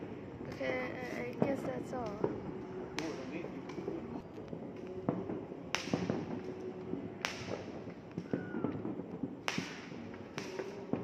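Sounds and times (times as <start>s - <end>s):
distant firework bangs: 5.0s - 11.0s.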